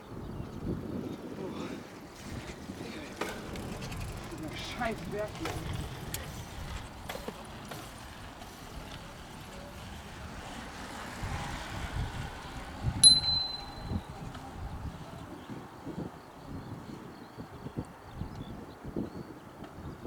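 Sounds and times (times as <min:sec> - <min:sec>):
faint outdoor rumble: 0:01.4 - 0:16.4
bell ringing: 0:13.0 - 0:14.1.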